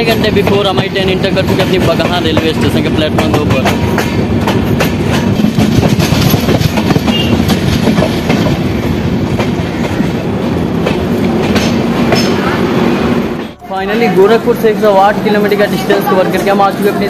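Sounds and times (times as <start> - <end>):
train wheels clattering over rail joints: 0.0 - 12.6.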